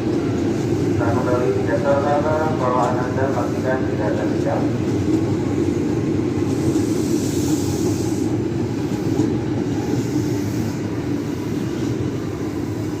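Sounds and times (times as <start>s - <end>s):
electric train rolling on rails: 0.0s - 13.0s.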